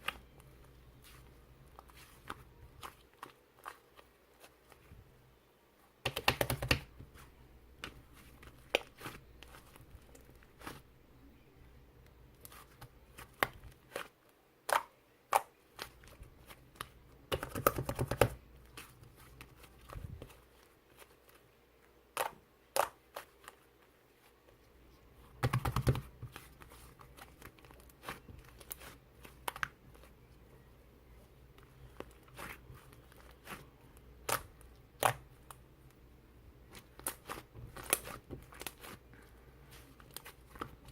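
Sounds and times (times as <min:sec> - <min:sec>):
slime crackling: 0:31.6 - 0:35.6, 0:36.6 - 0:39.1.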